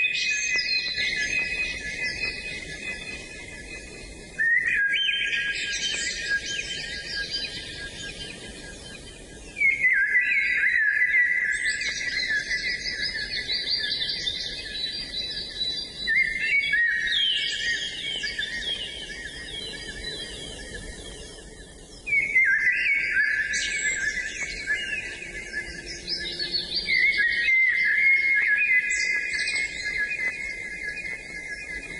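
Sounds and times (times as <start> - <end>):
songbirds trilling and chirping: 0.0 - 31.9.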